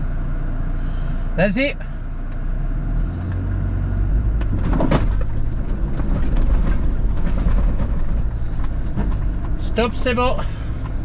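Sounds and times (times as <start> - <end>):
engine running under load: 0.0 - 11.0.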